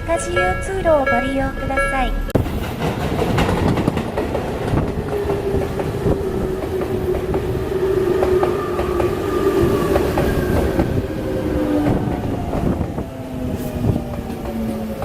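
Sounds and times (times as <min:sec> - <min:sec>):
train wheels knocking over rail joints: 0:02.4 - 0:07.5.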